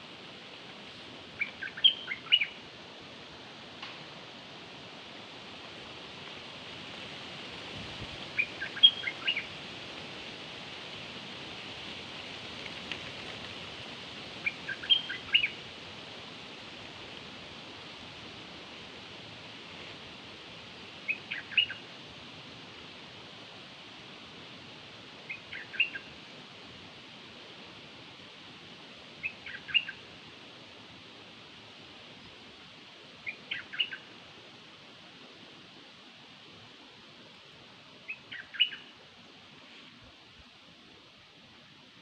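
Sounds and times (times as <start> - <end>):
steady hiss: 0.0 - 42.0
small bird chirping: 14.4 - 15.5.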